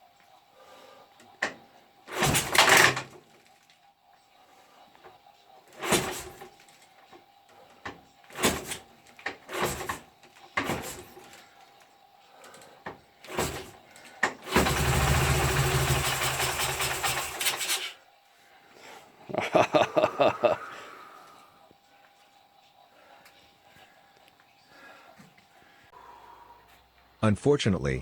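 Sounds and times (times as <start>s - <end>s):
motorcycle engine kick-started: 2.1s - 3.2s, 5.8s - 6.6s, 8.3s - 11.4s, 13.3s - 17.8s.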